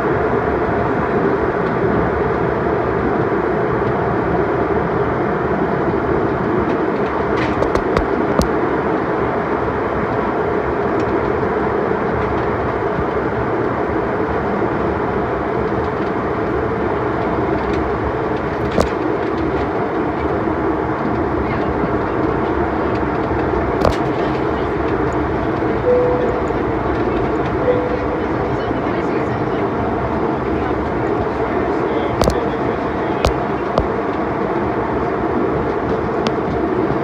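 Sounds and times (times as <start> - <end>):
airliner cabin roar: 0.0 - 37.0
sharp knock: 7.6 - 8.5.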